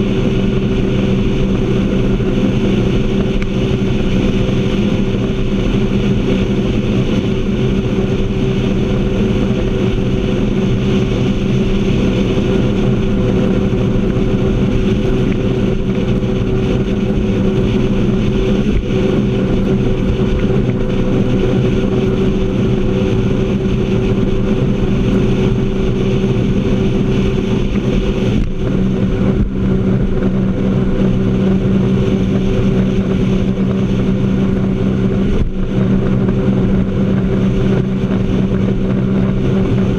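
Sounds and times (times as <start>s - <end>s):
jet ski engine running: 0.0s - 39.9s.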